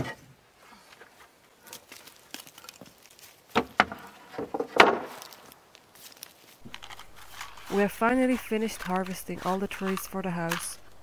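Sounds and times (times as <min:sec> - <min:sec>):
corrugated sheets and wood knocking: 0:03.5 - 0:05.4.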